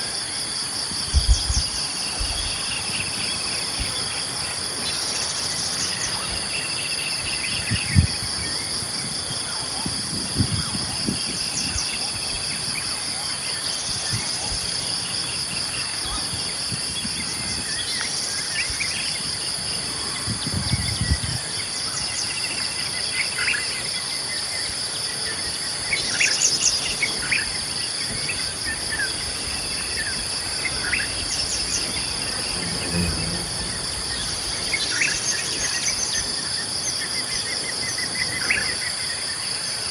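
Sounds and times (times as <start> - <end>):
insects droning: 0.0 - 39.9
low dull thumps: 1.1 - 2.6, 30.6 - 34.8.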